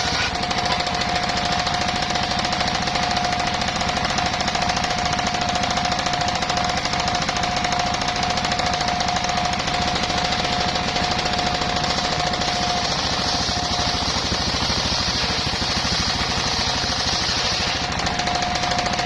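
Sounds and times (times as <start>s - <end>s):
circular saw blade whine: 0.0s - 2.3s, 8.4s - 19.0s
saw blade cutting timber: 0.0s - 3.6s, 9.5s - 19.0s
sawmill engine running: 0.0s - 19.0s.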